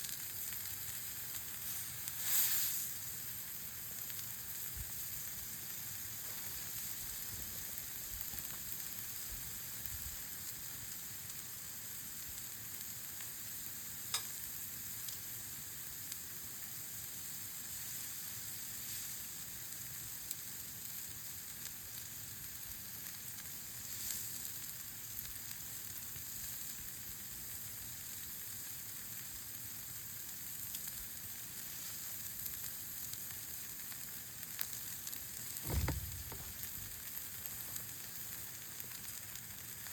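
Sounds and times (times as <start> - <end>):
meat sizzling over campfire: 0.0 - 39.9
sharp pop of fire: 14.1 - 14.4, 35.6 - 37.2.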